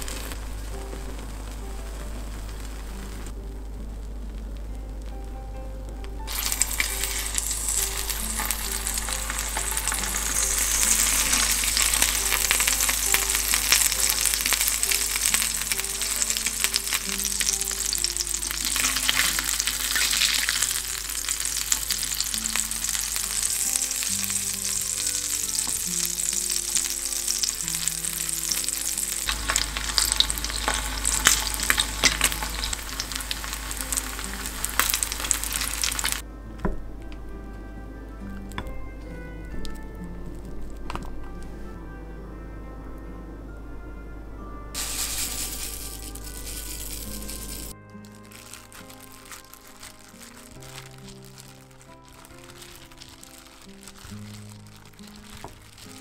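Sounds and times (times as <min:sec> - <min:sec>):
meat frying in oil: 0:00.0 - 0:03.3, 0:06.2 - 0:36.2, 0:44.8 - 0:56.0.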